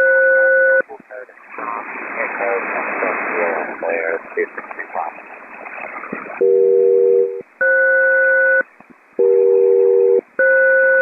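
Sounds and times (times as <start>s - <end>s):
radio hiss: 0.8s - 5.5s.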